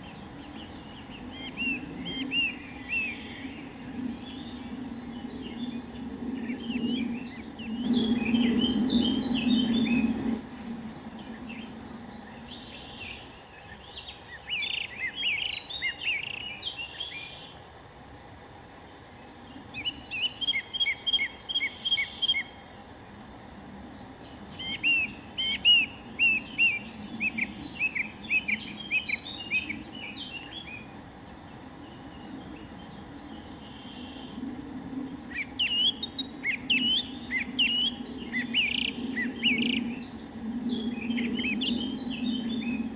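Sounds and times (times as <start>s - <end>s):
songbird chirping: 0.0s - 17.7s, 18.7s - 22.9s, 23.8s - 34.4s
low background noise: 0.0s - 42.9s.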